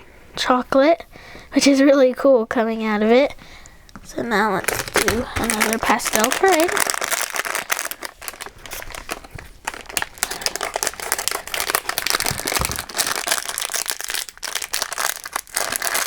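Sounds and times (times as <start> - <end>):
plastic packaging rustling: 4.0 - 16.0.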